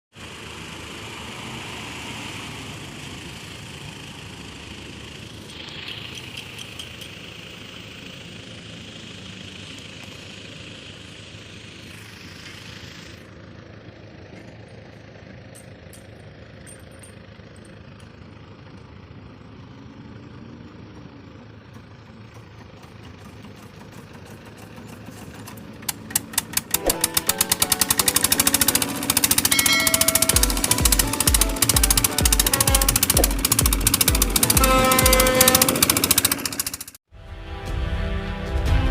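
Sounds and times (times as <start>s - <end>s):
large engine idling: 0.2s - 1.4s, 2.6s - 37.0s
rapid regular clicking: 25.3s - 37.0s.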